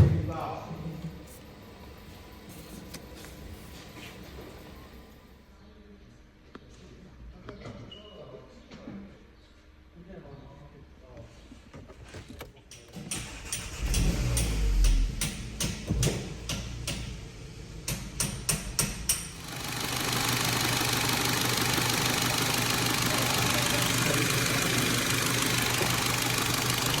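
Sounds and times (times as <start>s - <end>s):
sharp engine clicks: 12.6s - 17.2s, 17.8s - 27.0s
car engine running: 13.1s - 27.0s.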